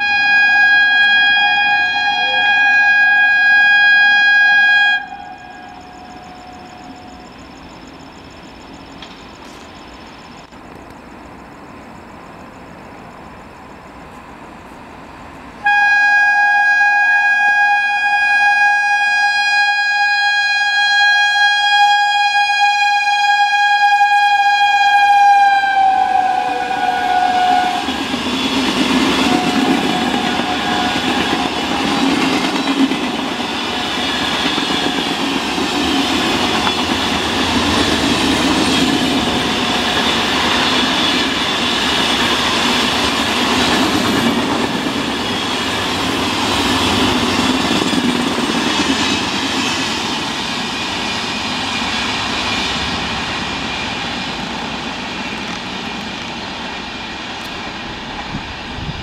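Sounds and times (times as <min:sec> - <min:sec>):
locomotive horn blast: 0:00.0 - 0:07.0, 0:15.6 - 0:27.9, 0:29.0 - 0:31.5
train wheels clattering over rail joints: 0:27.8 - 0:56.5.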